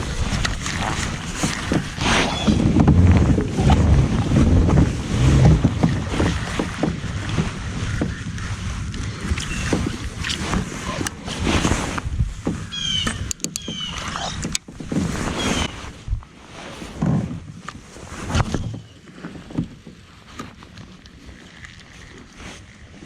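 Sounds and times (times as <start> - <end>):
water sloshing: 0.0 - 16.2
gear knocking on kayak hull: 0.6 - 11.1.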